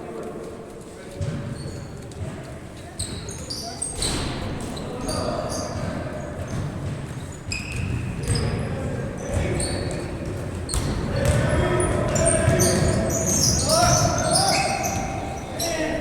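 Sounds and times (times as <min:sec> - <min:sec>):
shoe squeaks: 0:01.2 - 0:02.2, 0:02.8 - 0:16.0
basketball bouncing on hard court: 0:05.8 - 0:08.7, 0:09.3 - 0:14.2
players shouting: 0:11.0 - 0:16.0.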